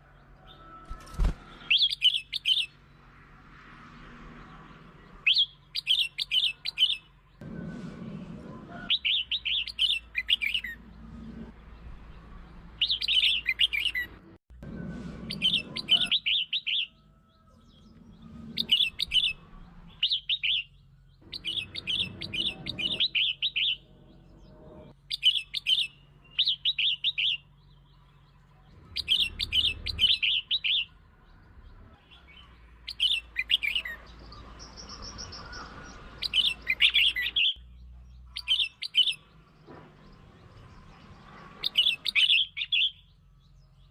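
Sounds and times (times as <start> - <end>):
bird singing warbled phrases: 0.6 - 3.0, 4.6 - 7.4, 8.9 - 11.2, 11.8 - 14.2, 15.3 - 43.9.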